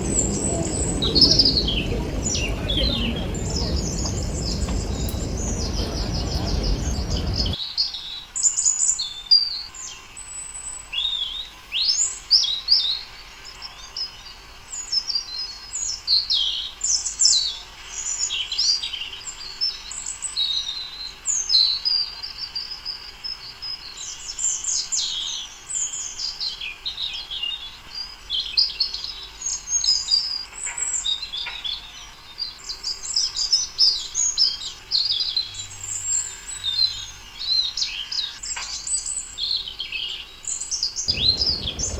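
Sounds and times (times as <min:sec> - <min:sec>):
songbirds chirping and twittering: 0:00.0 - 0:07.6, 0:41.1 - 0:41.9.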